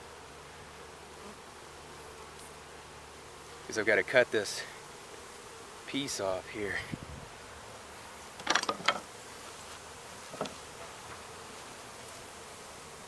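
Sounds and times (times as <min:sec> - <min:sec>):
honeybees buzzing: 0:00.0 - 0:13.0
knocks and clicks from hive: 0:08.3 - 0:09.2, 0:10.2 - 0:11.3.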